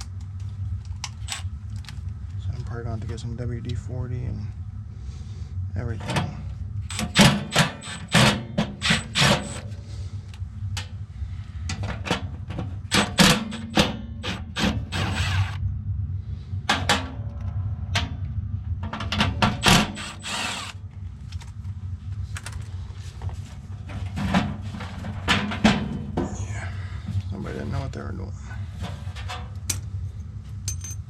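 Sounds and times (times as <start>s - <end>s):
low hum: 0.0s - 31.0s
power drill: 6.9s - 9.6s, 13.0s - 15.6s, 19.6s - 20.8s.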